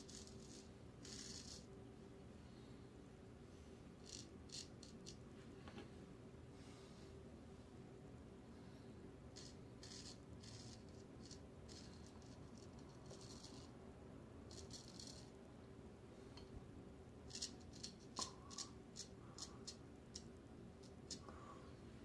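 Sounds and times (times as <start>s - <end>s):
razor scraping stubble: 0.0s - 1.7s, 9.4s - 13.7s, 14.5s - 15.3s.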